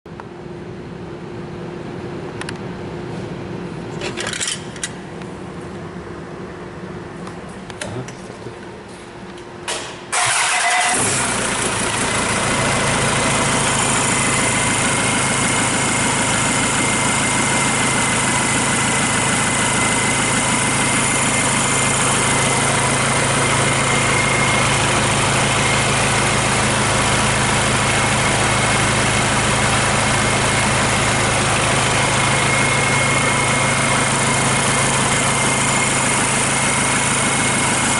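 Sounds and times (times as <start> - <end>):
diesel engine starting and idling: 9.6 - 37.9.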